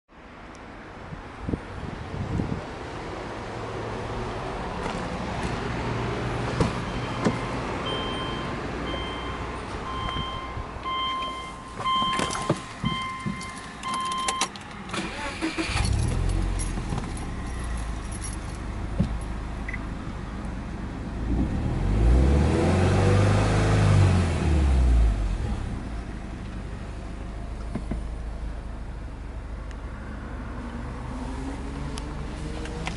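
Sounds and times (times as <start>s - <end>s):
car engine starting and idling: 6.2s - 32.9s
car warning chime beeping: 6.8s - 15.9s, 19.6s - 19.9s
keys jangling: 15.7s - 18.7s
engine revving: 21.2s - 25.7s.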